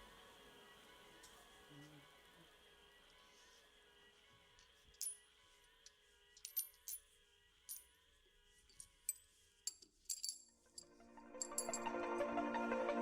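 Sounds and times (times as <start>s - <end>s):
small metal objects clinking: 4.6s - 5.3s, 6.4s - 7.1s, 8.7s - 11.9s.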